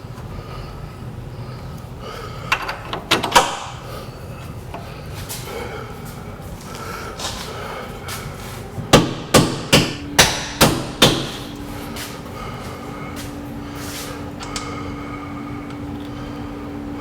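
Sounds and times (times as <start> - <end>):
hammer blows ringing: 8.9 - 11.6.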